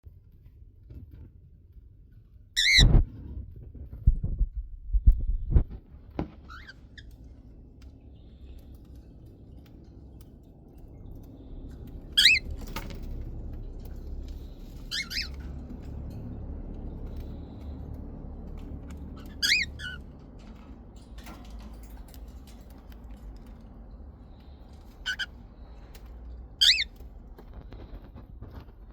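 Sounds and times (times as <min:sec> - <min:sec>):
low steady rumble: 0:00.1 - 0:28.9
parrot squawking: 0:02.6 - 0:02.9, 0:12.2 - 0:12.5, 0:14.8 - 0:15.4, 0:19.2 - 0:20.0, 0:25.0 - 0:25.3, 0:26.6 - 0:26.9.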